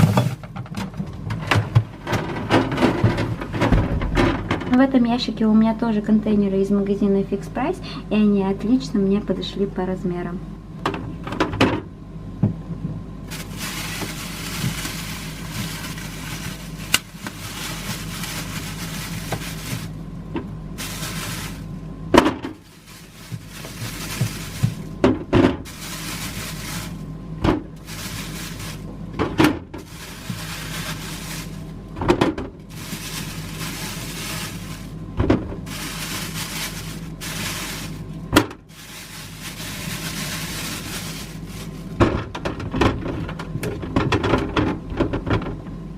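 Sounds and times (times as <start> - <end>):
steady low hum: 0.0 - 45.9
plastic containers being handled: 13.3 - 38.1, 38.7 - 44.2.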